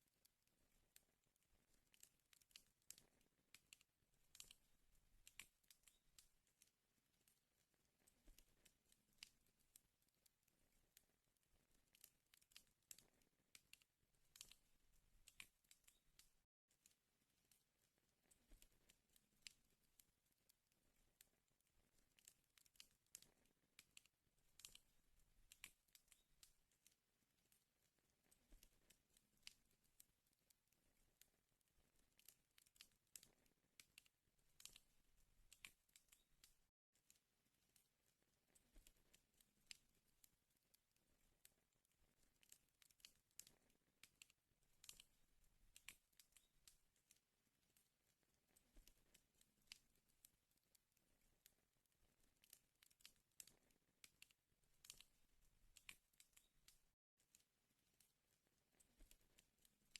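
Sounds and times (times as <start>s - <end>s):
wood fire crackling: 1.4s - 9.8s, 10.6s - 16.4s, 20.6s - 30.1s
firewood crackling and popping: 1.6s - 6.6s, 11.0s - 20.0s, 21.9s - 29.8s, 32.2s - 36.6s, 42.4s - 44.2s, 52.0s - 56.8s.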